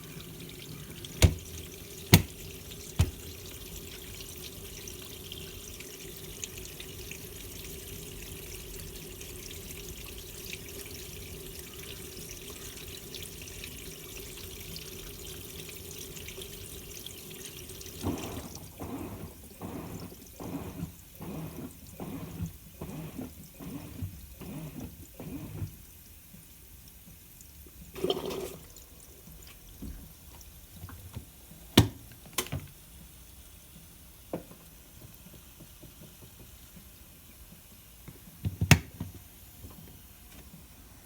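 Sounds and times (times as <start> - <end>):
washing machine water sloshing: 0.0 - 26.0, 27.6 - 33.2.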